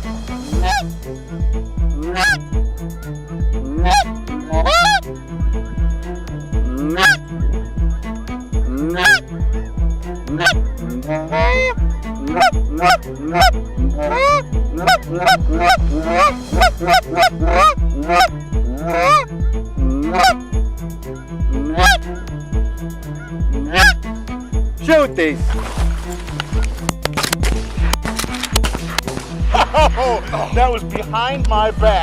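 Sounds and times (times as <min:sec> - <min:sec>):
music with thumping beat: 0:00.0 - 0:02.7, 0:03.5 - 0:18.7, 0:25.3 - 0:32.0
goose honking and clucking: 0:00.5 - 0:00.9, 0:02.1 - 0:02.4, 0:03.7 - 0:05.0, 0:06.8 - 0:07.3, 0:08.8 - 0:09.2, 0:10.3 - 0:19.3, 0:20.0 - 0:20.4, 0:21.7 - 0:22.0, 0:23.2 - 0:24.0.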